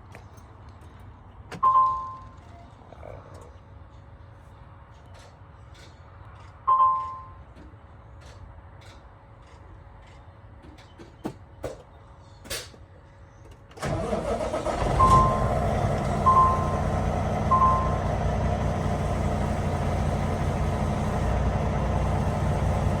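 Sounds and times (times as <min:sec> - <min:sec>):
diesel truck engine running: 0:13.8 - 0:23.0.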